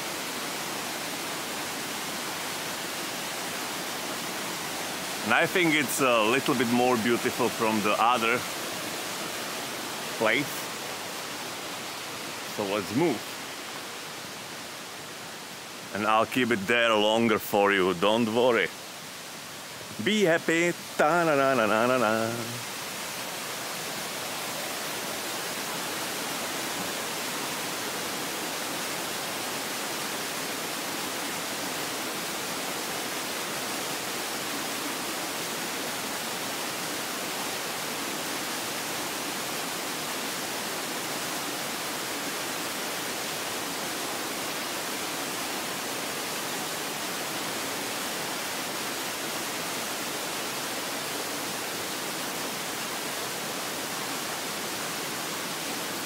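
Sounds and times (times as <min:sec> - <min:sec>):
waterfall pouring: 0:05.1 - 0:08.7.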